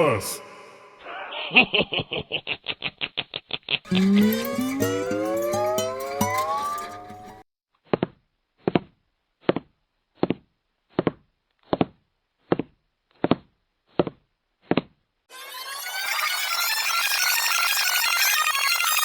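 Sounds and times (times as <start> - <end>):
music: 3.9 - 7.4.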